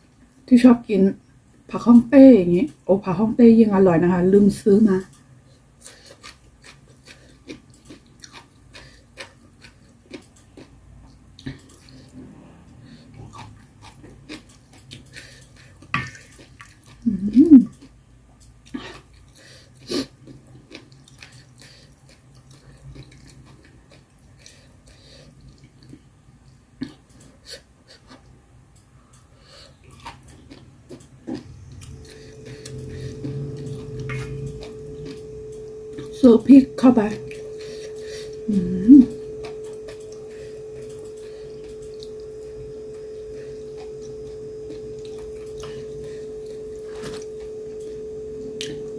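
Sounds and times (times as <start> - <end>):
person chewing: 5.5 - 36.2, 37.2 - 48.9
person humming: 17.0 - 17.7, 36.2 - 39.3.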